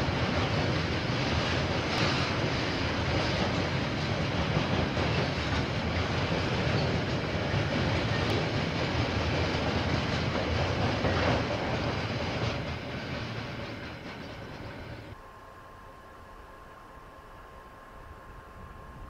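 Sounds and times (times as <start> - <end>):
freight wagons rumbling rattle: 0.0 - 15.2.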